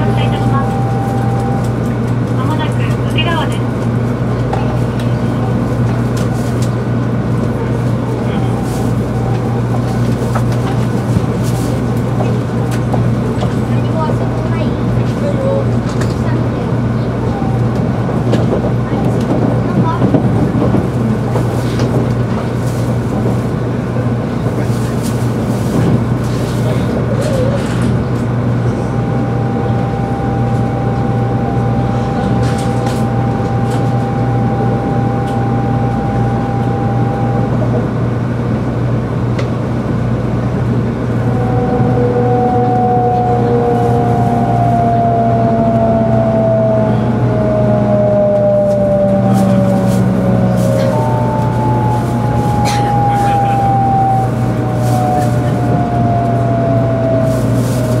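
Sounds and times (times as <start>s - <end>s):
train interior rumble and hum: 0.0s - 58.0s.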